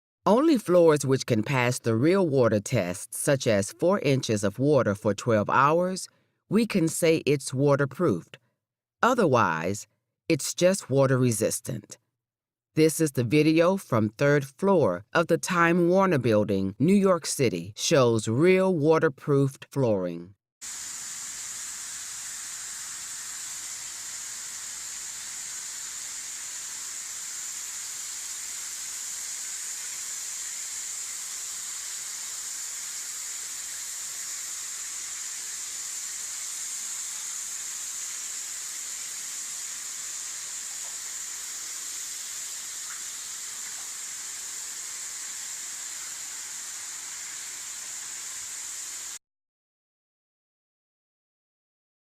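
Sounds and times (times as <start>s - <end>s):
high-pitched hiss: 20.6s - 49.2s.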